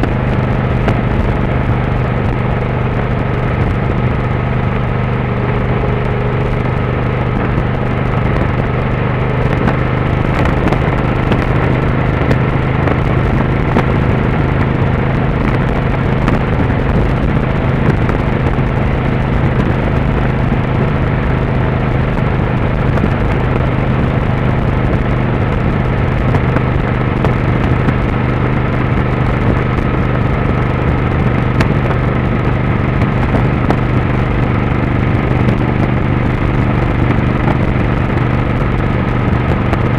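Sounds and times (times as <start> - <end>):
motorcycle engine running: 0.0 - 39.9
rushing noise: 0.0 - 39.9.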